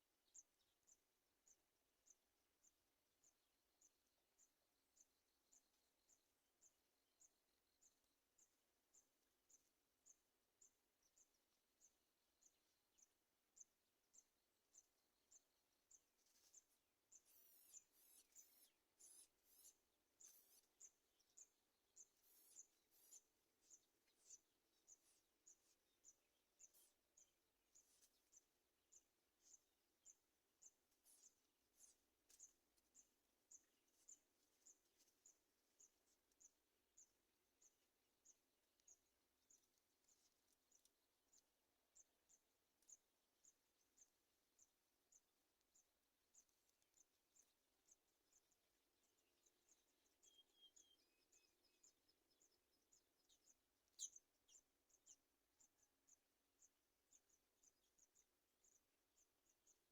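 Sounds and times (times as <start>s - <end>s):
nestling birds cheeping: 13.6s - 34.1s, 49.1s - 55.2s.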